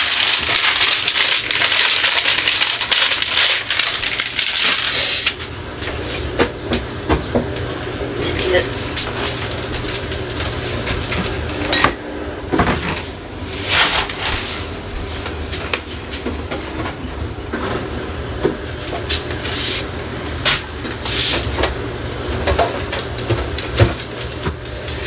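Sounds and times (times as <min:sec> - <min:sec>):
steady low hum: 0:03.1 - 0:25.0
short rustling hisses: 0:04.9 - 0:05.3.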